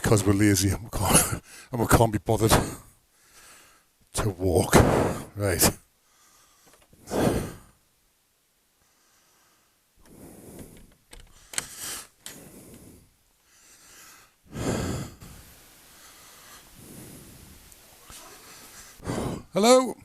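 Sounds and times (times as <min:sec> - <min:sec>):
man breathing hard: 0:03.1 - 0:03.9, 0:06.0 - 0:07.8, 0:08.8 - 0:19.6.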